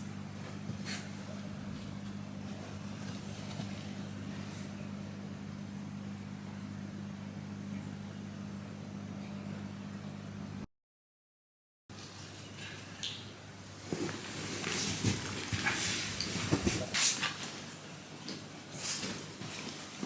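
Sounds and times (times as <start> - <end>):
low mechanical hum: 0.0 - 10.7, 11.9 - 20.0.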